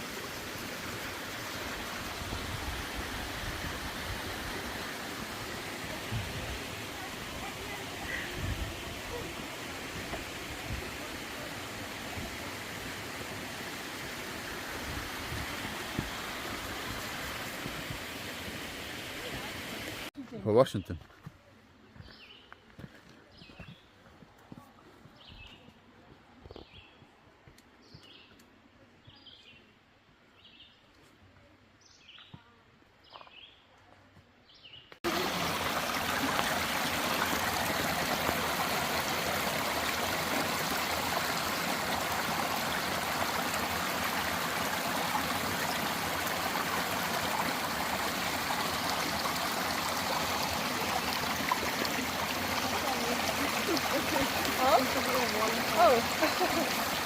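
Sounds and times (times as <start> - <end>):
stream rushing over rocks: 0.0 - 20.1, 35.0 - 57.0.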